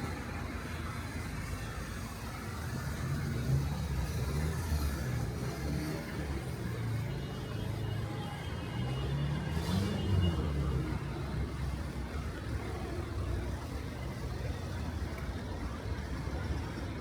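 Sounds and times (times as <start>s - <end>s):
rain: 0.0s - 17.0s
traffic hiss on wet road: 0.0s - 17.0s
vehicle engine revving: 9.3s - 11.1s.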